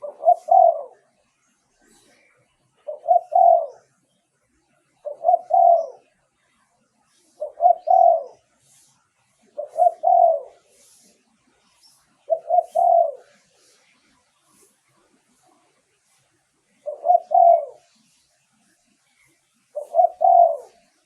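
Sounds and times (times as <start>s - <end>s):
dove cooing: 0.0s - 1.1s, 2.8s - 3.9s, 5.0s - 6.1s, 7.3s - 8.5s, 9.4s - 11.0s, 12.2s - 13.8s, 16.7s - 18.1s, 19.7s - 21.0s.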